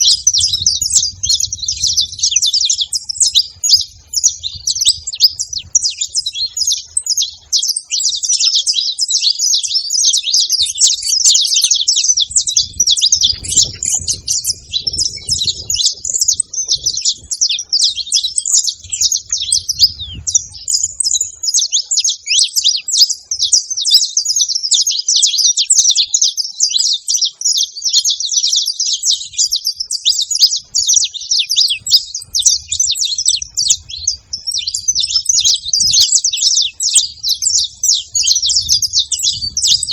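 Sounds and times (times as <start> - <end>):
faint low rumble: 0.0 - 7.2, 12.1 - 21.3, 31.9 - 39.9
finches chirping: 0.0 - 39.9.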